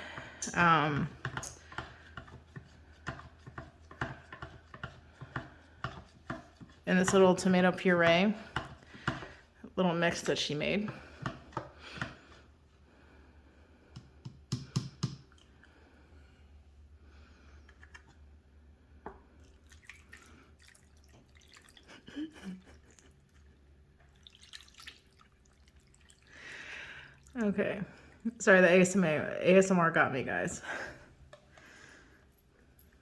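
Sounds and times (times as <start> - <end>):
sauce pouring and dripping: 19.3 - 22.2, 22.8 - 27.4.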